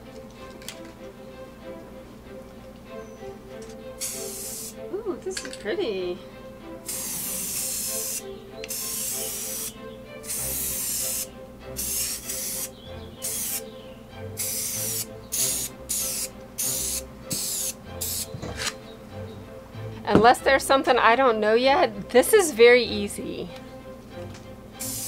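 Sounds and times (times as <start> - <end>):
spray paint can hissing: 4.0 - 4.8, 6.9 - 13.7, 14.4 - 18.4, 24.8 - 25.0.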